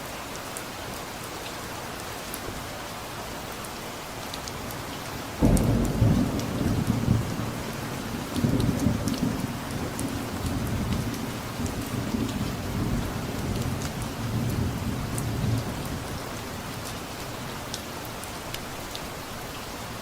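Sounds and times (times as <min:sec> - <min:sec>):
rain with drops ticking: 0:00.0 - 0:20.0
distant thunder rumble: 0:05.4 - 0:16.1.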